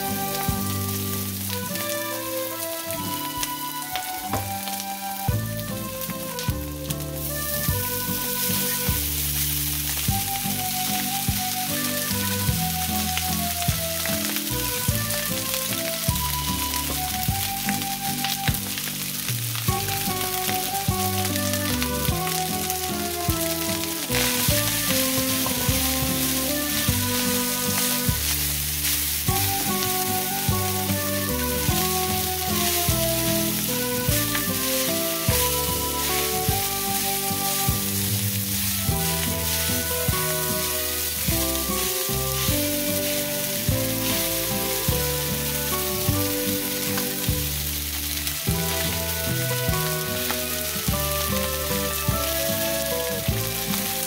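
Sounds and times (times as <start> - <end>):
background music: 0.0 - 54.0
food sizzling in a frying pan: 0.0 - 54.0
spatula scraping a pan: 23.8 - 29.9.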